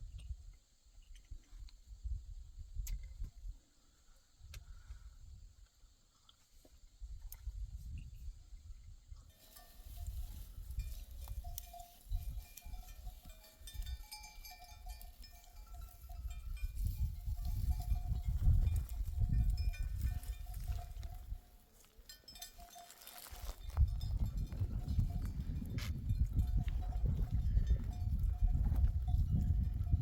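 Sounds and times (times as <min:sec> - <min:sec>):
sheep bells clinking: 0:09.3 - 0:30.0.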